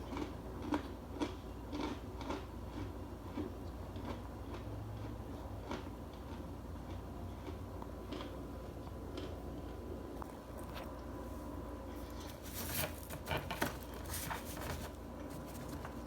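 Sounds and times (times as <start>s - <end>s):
dry starch crunching: 11.9s - 16.0s.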